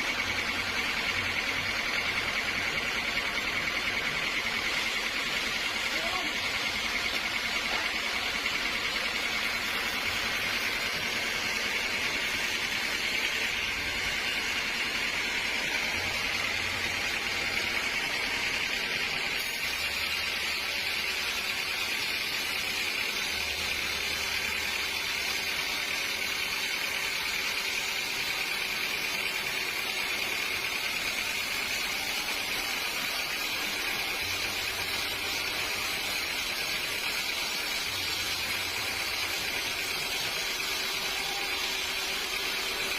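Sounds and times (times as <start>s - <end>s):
sawmill machinery running: 0.0s - 42.9s.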